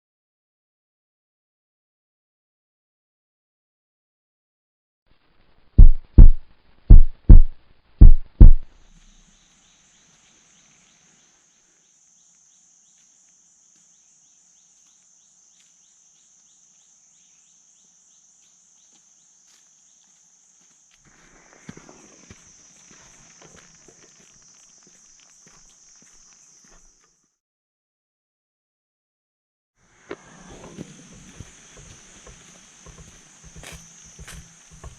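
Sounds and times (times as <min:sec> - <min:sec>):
heartbeat double thumps: 0:05.8 - 0:08.7
faint high hiss: 0:08.7 - 0:27.1, 0:29.8 - 0:34.9.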